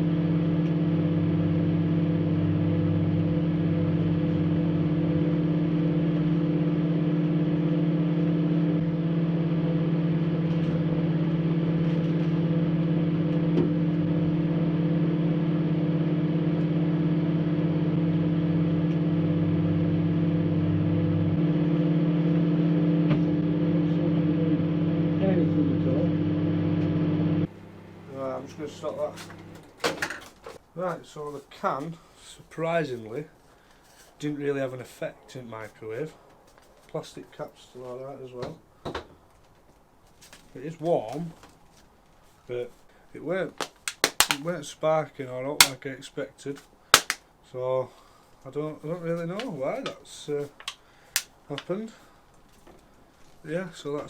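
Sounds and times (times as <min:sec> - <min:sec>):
microwave oven humming: 0:00.0 - 0:30.2.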